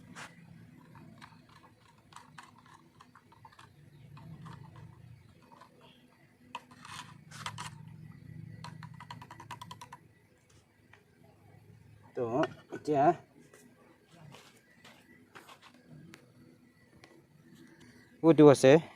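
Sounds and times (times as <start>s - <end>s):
paint mixing scrapes and clicks: 0.0s - 7.9s.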